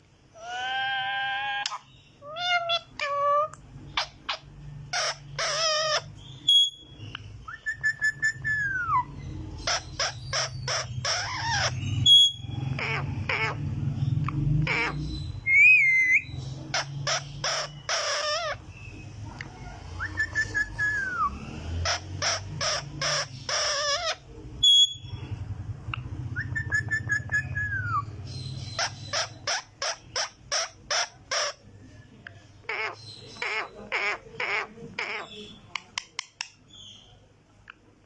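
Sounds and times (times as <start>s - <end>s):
parrot whistling: 0.4s - 13.6s, 14.7s - 19.0s, 20.0s - 25.2s, 26.3s - 28.1s
parrot squawking: 0.4s - 31.8s, 32.6s - 37.0s.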